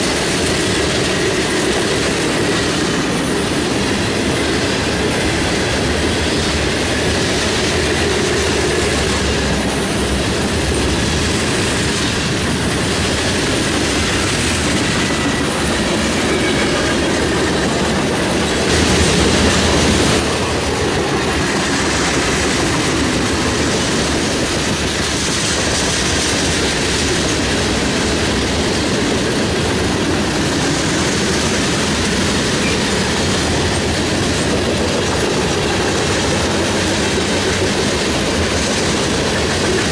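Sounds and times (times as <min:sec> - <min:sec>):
hopper cars rolling on rails: 0:00.0 - 0:39.9.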